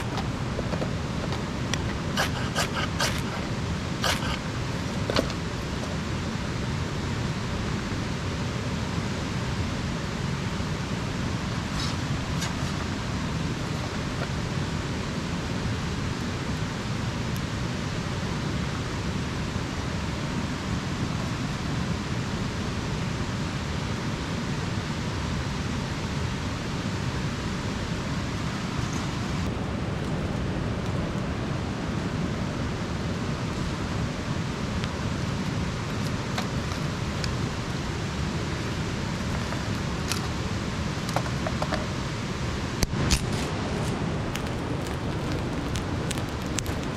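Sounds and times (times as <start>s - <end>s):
light rain falling: 0.0s - 46.9s.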